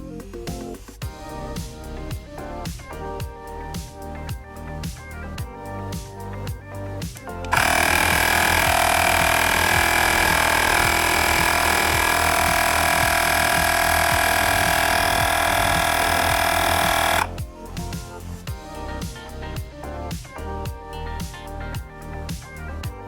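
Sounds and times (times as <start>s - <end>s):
background music: 0.0s - 23.0s
tire inflator compressor buzzing: 7.5s - 17.4s.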